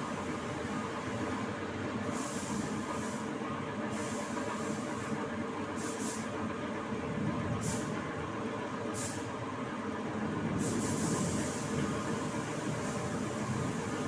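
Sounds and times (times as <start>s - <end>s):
spray gun hissing: 2.1s - 3.2s, 3.9s - 5.1s, 5.8s - 6.3s, 7.6s - 7.9s, 9.0s - 9.3s, 10.6s - 14.0s.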